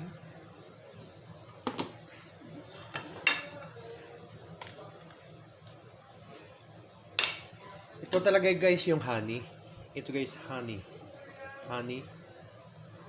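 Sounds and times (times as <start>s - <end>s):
utensils and dishes clinking: 2.7s - 3.7s.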